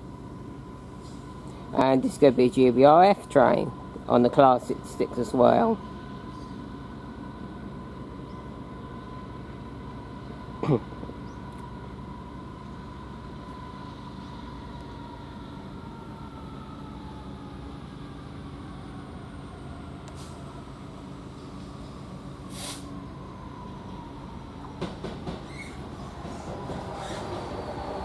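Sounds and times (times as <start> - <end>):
diesel locomotive engine drone: 0.0 - 28.0
short hiss: 22.5 - 22.9.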